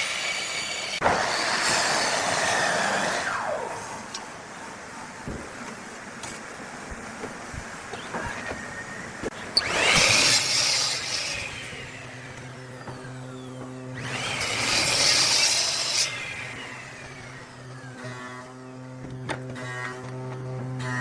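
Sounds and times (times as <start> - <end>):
power tool cutting wood: 0.0 - 4.1, 7.9 - 21.0
motor humming: 7.0 - 21.0.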